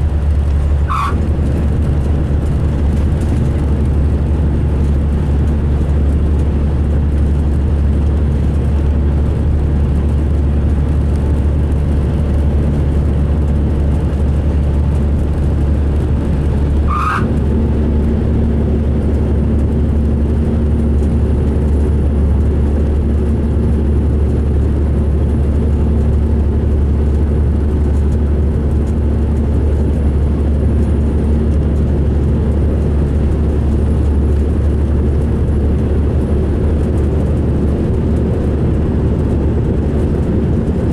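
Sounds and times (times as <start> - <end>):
coach engine and road drone: 0.0 - 40.9
short squeak: 0.8 - 1.2, 16.8 - 17.3.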